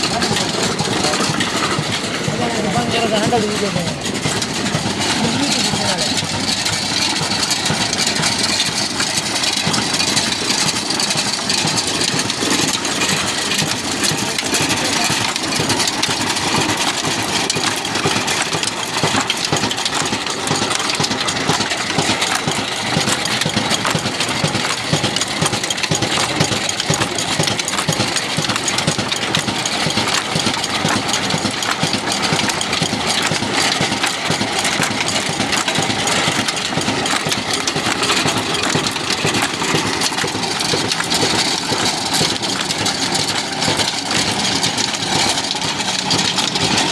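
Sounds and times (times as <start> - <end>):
stationary engine knocking steadily: 0.0 - 46.9.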